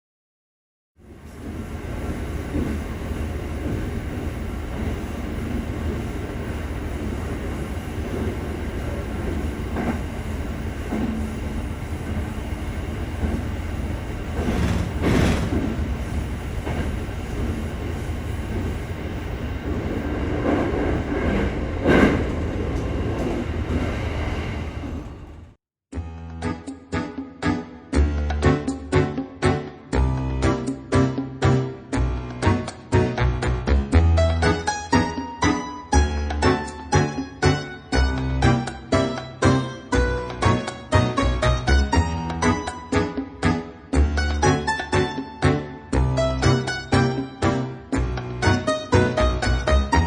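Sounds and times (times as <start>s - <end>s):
train rattling: 1.0s - 25.6s
train rumbling on track: 1.0s - 25.6s.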